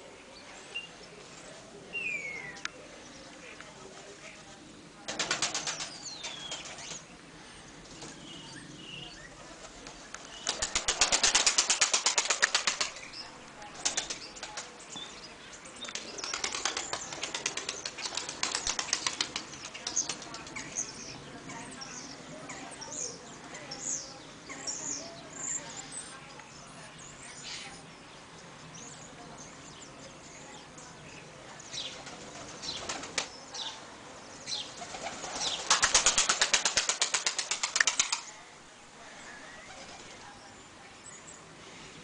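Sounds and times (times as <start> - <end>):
pigeon wings flapping: 5.1 - 7.0, 9.6 - 13.0, 13.7 - 14.7, 16.0 - 20.6, 32.0 - 33.4, 34.8 - 38.4.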